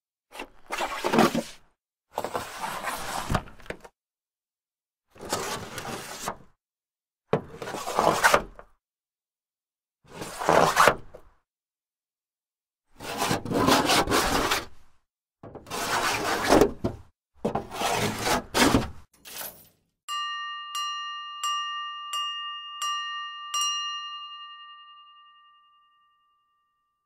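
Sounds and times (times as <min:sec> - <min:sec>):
rough scraping strokes: 0:15.7 - 0:16.6, 0:17.7 - 0:19.5.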